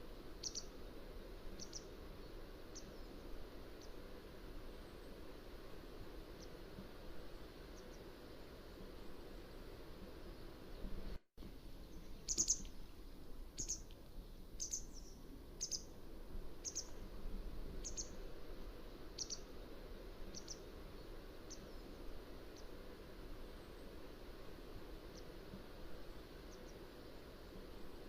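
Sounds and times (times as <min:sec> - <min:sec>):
bird calling sharply: 0:12.3 - 0:12.7.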